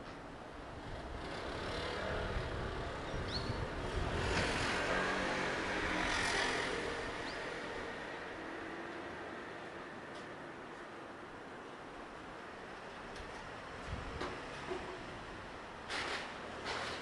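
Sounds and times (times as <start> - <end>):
vehicle passing on road: 0.8 - 9.7.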